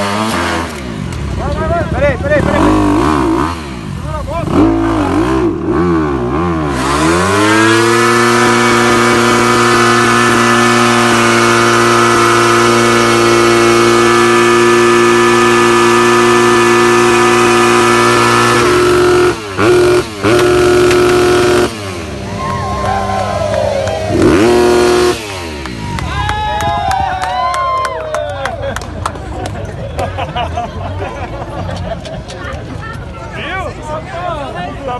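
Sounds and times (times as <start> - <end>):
motocross bike engine revving: 0.0 - 26.3.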